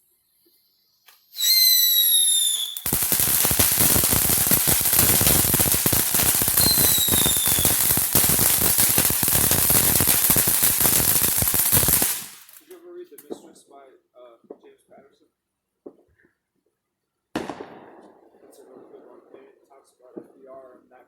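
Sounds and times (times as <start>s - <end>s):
firework whistle: 1.2s - 12.6s
rapid crackle of small bangs: 2.8s - 12.6s.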